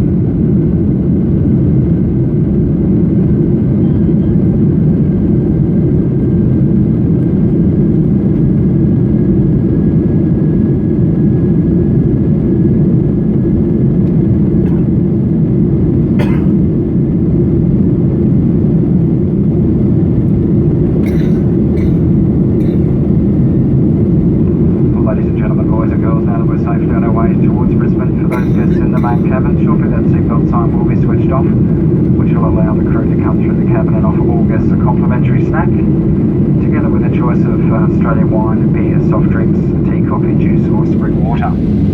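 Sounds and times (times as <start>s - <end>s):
jet engine cabin roar: 0.0s - 41.9s
faint steady whine: 20.2s - 35.9s, 36.6s - 41.9s.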